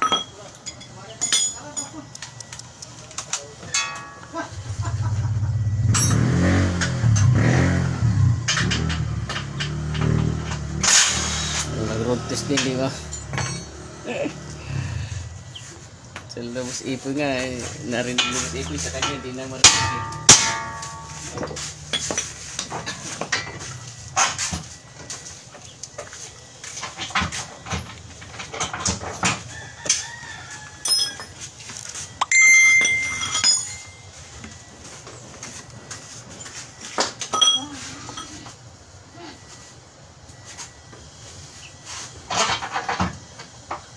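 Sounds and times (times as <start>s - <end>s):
metal hand tools clinking: 0.0s - 6.3s, 10.8s - 13.8s, 17.6s - 24.4s, 30.8s - 34.2s, 37.2s - 38.5s
sharp clicks: 2.1s - 3.3s
ringing pitched metal sound: 3.6s - 6.8s, 18.0s - 22.1s, 32.2s - 34.2s
car engine revving: 4.6s - 15.2s.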